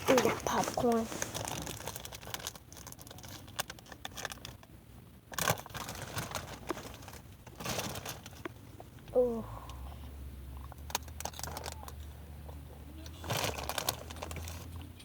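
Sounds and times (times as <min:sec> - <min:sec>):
bag rustling and crinkling: 0:00.0 - 0:04.4, 0:05.4 - 0:08.6, 0:13.2 - 0:14.7
small crackles: 0:00.0 - 0:04.7, 0:05.3 - 0:09.2, 0:10.6 - 0:15.0.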